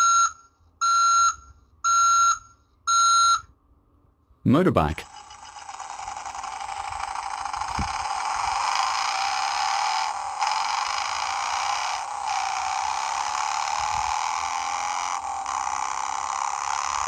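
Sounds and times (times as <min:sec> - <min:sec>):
recorded motorcycle engine from speaker: 0:04.8 - 0:17.0.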